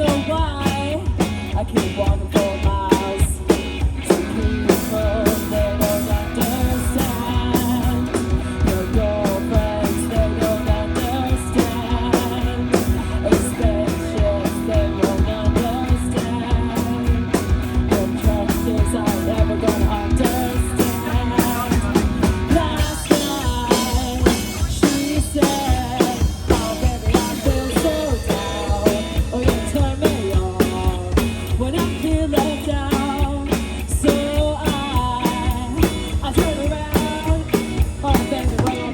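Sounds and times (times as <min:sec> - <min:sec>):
drum kit beat: 0:00.0 - 0:38.9
electric guitar: 0:00.0 - 0:38.9.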